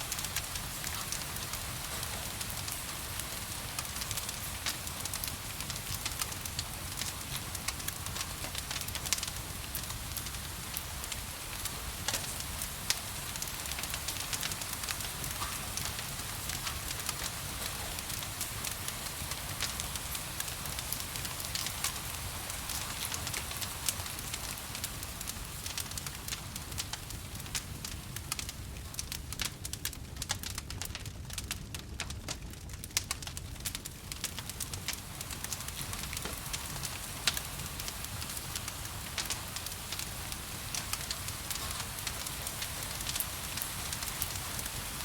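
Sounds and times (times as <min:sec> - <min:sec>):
gentle rain: 0:00.0 - 0:45.0
wood fire crackling: 0:00.0 - 0:45.0.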